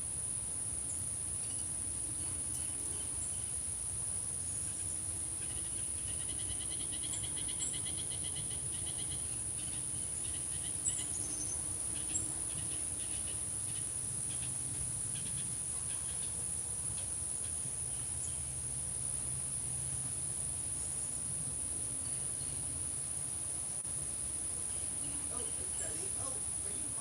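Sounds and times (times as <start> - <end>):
insects singing: 0.1 - 27.0.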